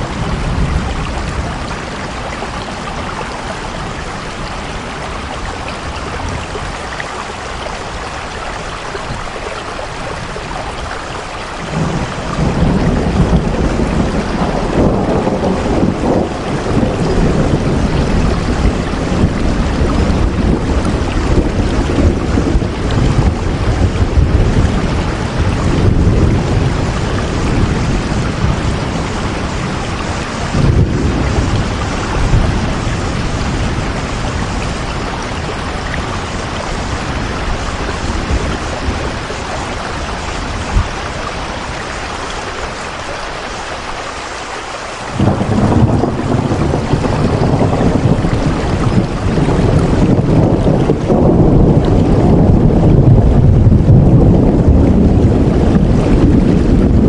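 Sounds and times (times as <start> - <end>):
heavy rain falling: 0.0 - 57.0
deep rumbling: 45.1 - 57.0.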